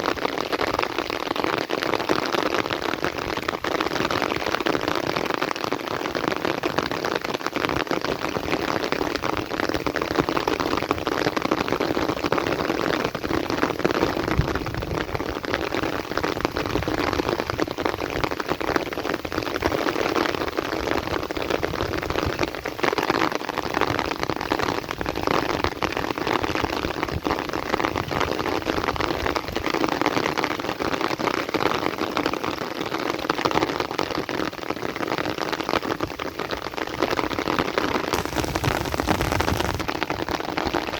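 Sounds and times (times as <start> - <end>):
heavy rain: 38.2 - 40.0.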